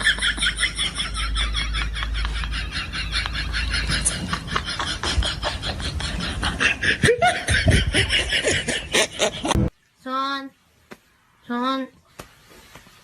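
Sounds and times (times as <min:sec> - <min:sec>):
person snickering: 0:00.0 - 0:09.7.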